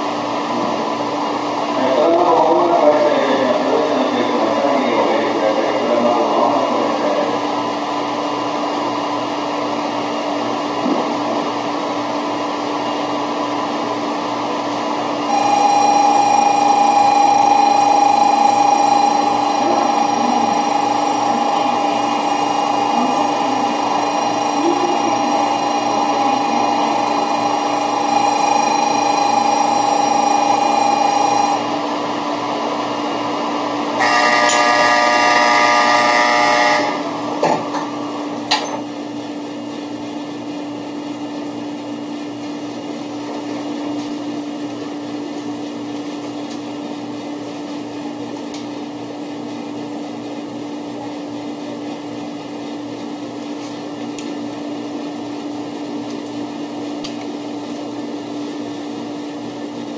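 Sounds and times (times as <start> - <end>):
mechanical hum: 0.0 - 59.9
signal tones: 15.2 - 31.8.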